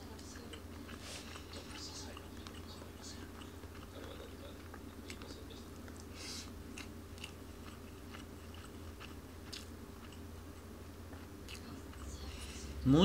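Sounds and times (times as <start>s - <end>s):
person chewing and eating: 0.0s - 13.0s
steady low hum: 0.0s - 13.0s.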